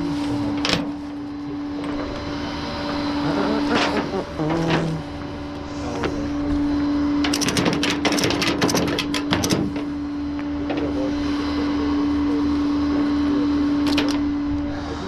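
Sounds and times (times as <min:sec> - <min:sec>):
truck engine humming: 0:00.0 - 0:15.0
ratchet strap clicking: 0:07.3 - 0:09.7.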